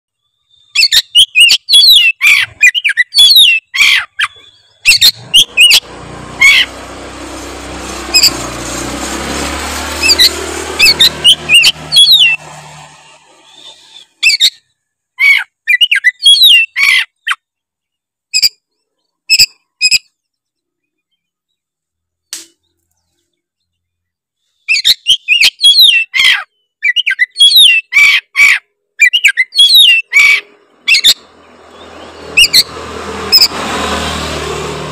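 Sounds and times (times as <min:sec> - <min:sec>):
rushing noise: 0:05.1 - 0:14.2.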